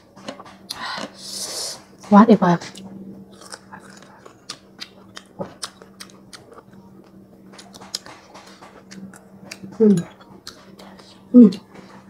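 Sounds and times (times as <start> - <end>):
crunching and chewing mango: 2.7 - 11.7.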